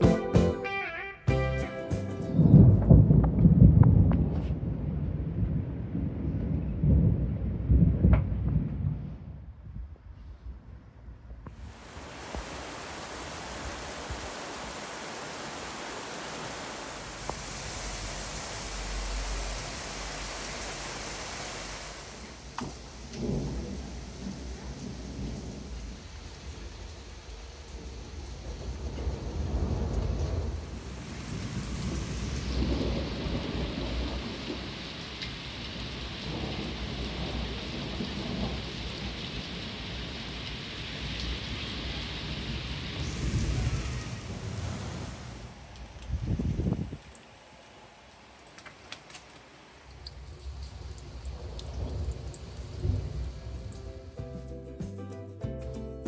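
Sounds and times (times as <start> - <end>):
thunder rumbling: 2.2 - 47.6, 49.9 - 54.2
heavy rain hissing: 11.5 - 54.4.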